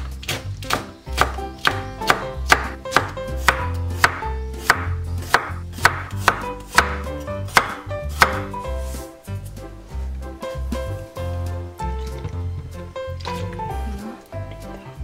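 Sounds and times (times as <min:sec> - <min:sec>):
knife slicing garlic on cutting board: 0:00.2 - 0:09.0.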